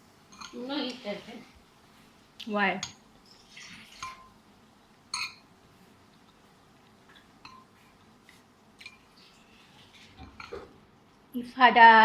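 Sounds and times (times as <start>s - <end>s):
dishes clinking: 0.3s - 0.7s, 2.8s - 4.4s, 5.1s - 5.5s, 7.1s - 7.8s, 10.0s - 10.8s.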